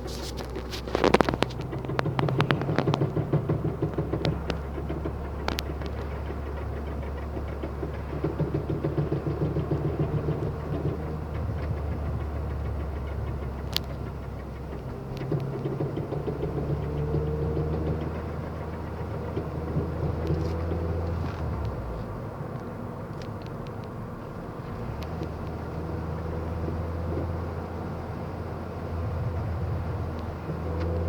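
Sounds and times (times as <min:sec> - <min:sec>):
car engine running: 0:00.0 - 0:31.0
rapid rhythmic knocking: 0:00.0 - 0:31.0.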